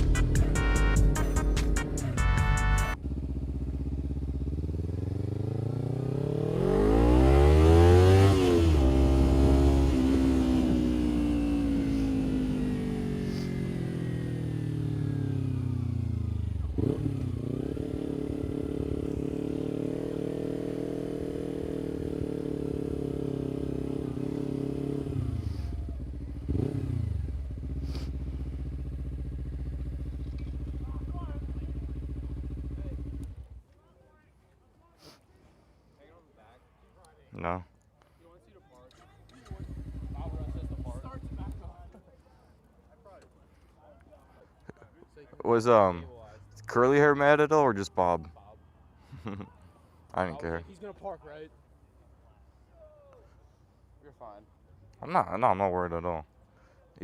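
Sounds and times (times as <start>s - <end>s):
motorcycle engine revving: 0.0s - 33.6s, 39.3s - 41.9s.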